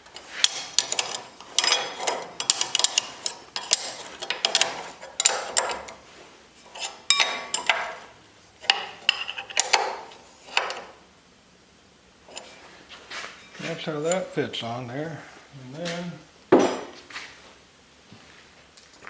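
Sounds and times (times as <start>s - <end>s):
metal tools clinking: 0.0s - 6.0s, 6.6s - 10.9s, 13.4s - 14.4s, 16.6s - 17.0s.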